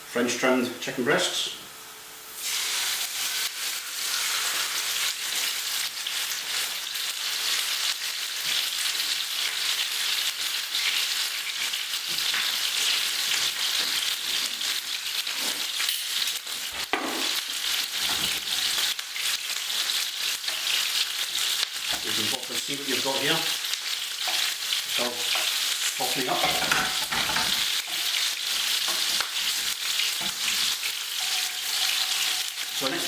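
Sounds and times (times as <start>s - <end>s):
chicken sizzling in hot oil: 2.2s - 33.0s.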